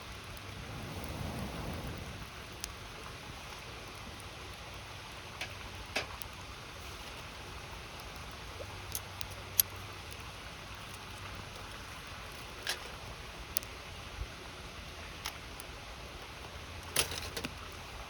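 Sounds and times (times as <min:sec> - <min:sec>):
river rushing: 0:00.0 - 0:04.0
campfire crackling and popping: 0:00.0 - 0:18.0.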